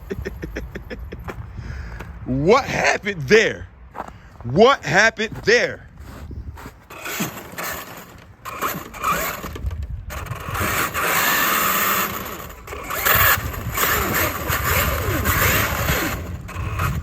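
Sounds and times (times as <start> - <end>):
electric motor whine revving: 6.9 - 17.0.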